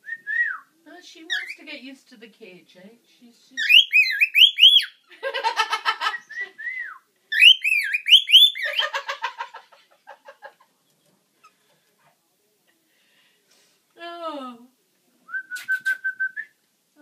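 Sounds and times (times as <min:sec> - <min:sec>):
parrots whistling: 0:03.6 - 0:05.0, 0:06.2 - 0:08.9.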